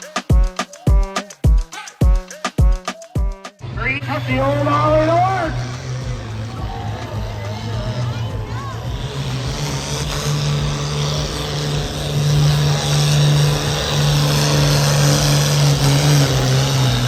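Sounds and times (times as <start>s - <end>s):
tractor engine running under load: 3.6s - 17.0s.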